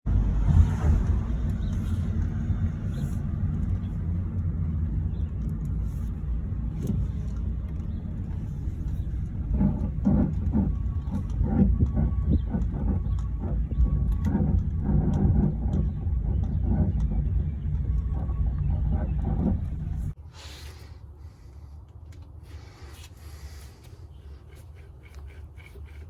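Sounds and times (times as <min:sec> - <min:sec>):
wheel bearing grinding rumble: 0:00.0 - 0:20.2
rhythmic scrape: 0:08.2 - 0:20.2.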